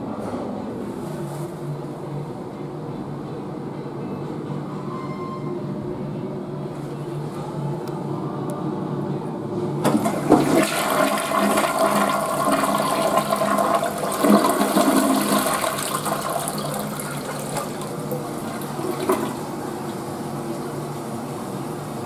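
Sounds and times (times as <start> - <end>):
toilet flushing: 9.8 - 22.0.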